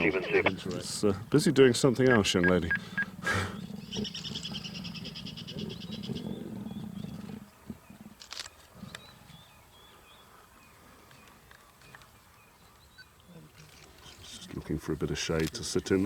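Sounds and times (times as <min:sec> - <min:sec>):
high bird trill: 0:02.1 - 0:06.1.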